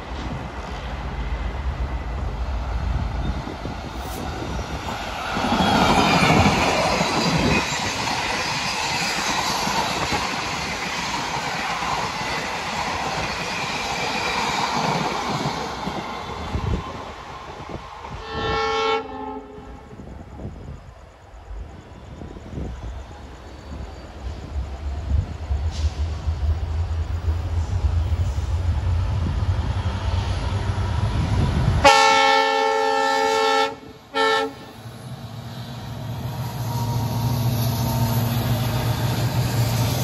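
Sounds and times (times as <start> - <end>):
train wheels clattering on rails: 3.2 - 18.1
train horn blast: 18.2 - 19.8, 31.8 - 34.8.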